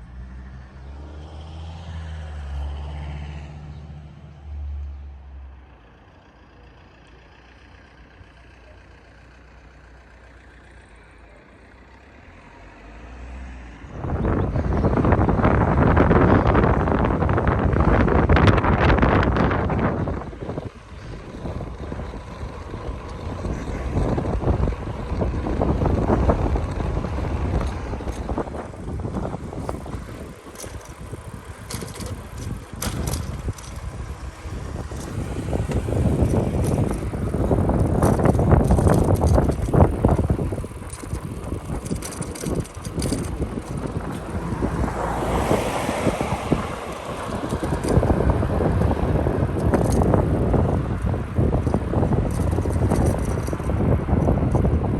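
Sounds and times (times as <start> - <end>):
wind buffeting microphone: 13.9 - 54.9
bicycle rattling and knocking: 14.4 - 54.9.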